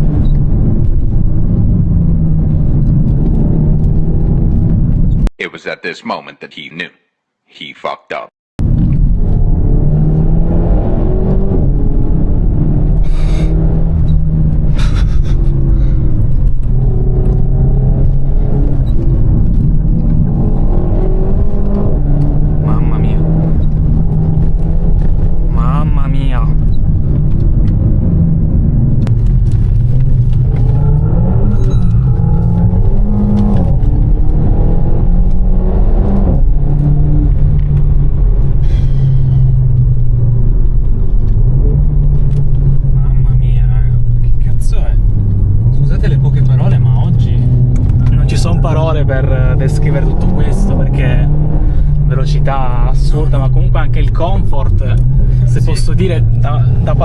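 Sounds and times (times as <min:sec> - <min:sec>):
car engine revving hard: 0:09.1 - 0:25.9, 0:29.7 - 0:39.8, 0:45.0 - 0:57.0.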